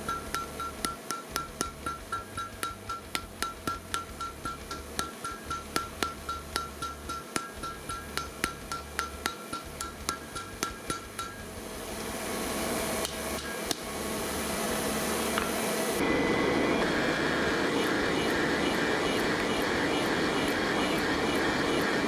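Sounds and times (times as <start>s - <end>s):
hammer on hot steel: 0.0s - 11.6s, 13.0s - 14.0s, 16.8s - 22.0s
steady rushing roar: 4.6s - 22.0s.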